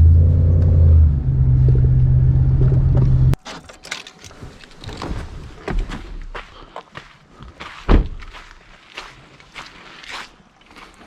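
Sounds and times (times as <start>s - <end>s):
truck engine humming: 0.0s - 3.4s.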